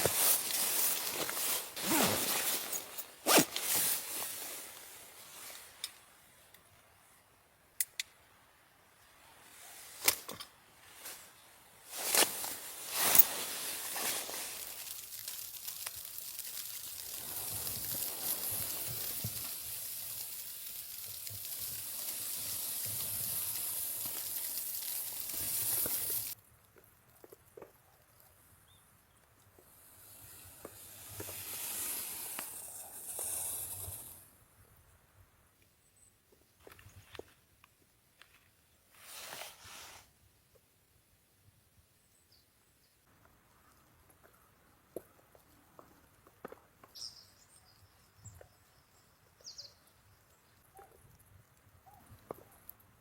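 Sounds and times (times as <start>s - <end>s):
food sizzling in hot pan: 14.2s - 26.4s.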